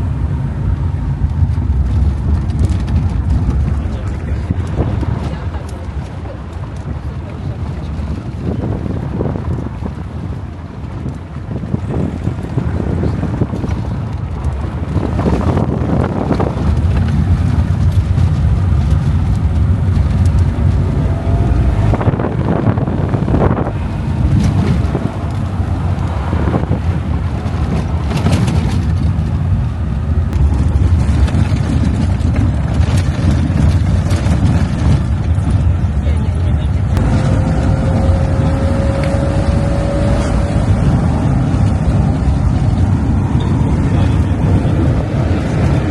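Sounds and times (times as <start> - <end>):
car engine and road rumble: 0.0 - 45.9
knocks and rattles from bumps: 24.2 - 29.7, 30.3 - 38.5.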